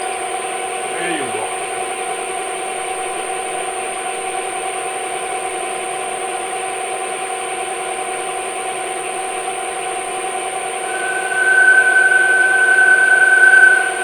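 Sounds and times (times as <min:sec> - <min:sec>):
metal lathe whining: 0:10.8 - 0:14.0.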